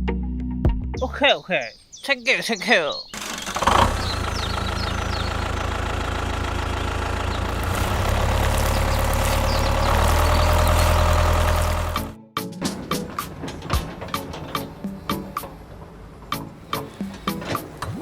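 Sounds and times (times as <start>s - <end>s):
engine running with low hum: 3.2s - 18.0s.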